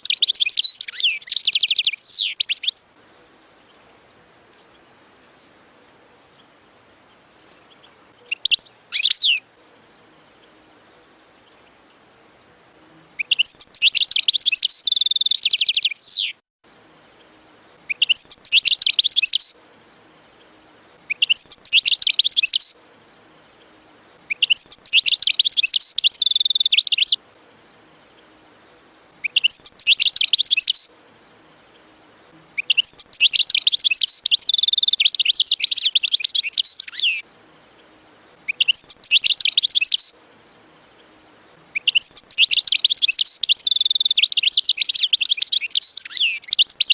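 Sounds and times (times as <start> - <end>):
goldfinch twittering and trills: 0.0 - 2.8, 7.1 - 9.4, 13.2 - 16.3, 17.7 - 19.6, 20.4 - 22.8, 24.2 - 27.2, 29.2 - 31.9, 32.6 - 37.2, 37.8 - 40.6, 41.7 - 46.9.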